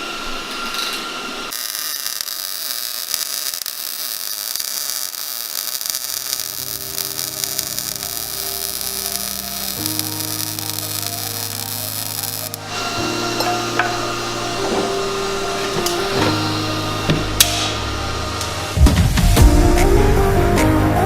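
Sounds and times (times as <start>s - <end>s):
welding arc crackling: 0.0s - 19.4s
sustained low music notes: 7.1s - 21.0s.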